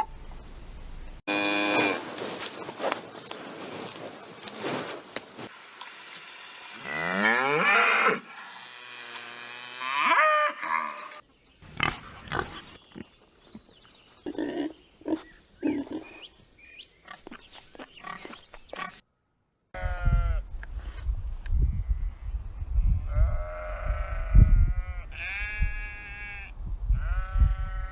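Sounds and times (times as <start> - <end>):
cow mooing: 6.8 - 11.1
sheep bleating: 23.1 - 27.9.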